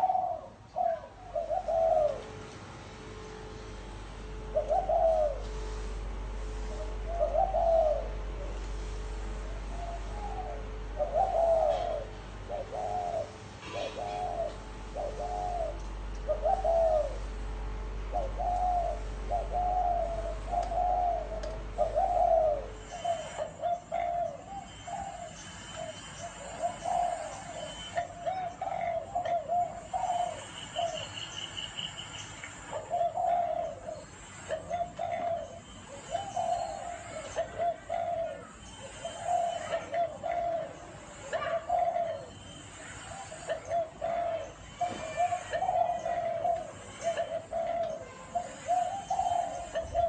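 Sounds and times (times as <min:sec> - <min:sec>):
dove cooing: 0:00.0 - 0:02.4, 0:04.4 - 0:50.0
low hum: 0:01.1 - 0:23.4.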